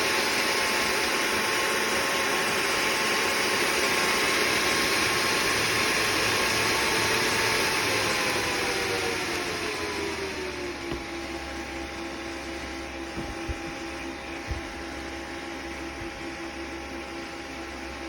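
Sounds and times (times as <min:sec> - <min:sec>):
small fan whirring: 0:00.0 - 0:18.0.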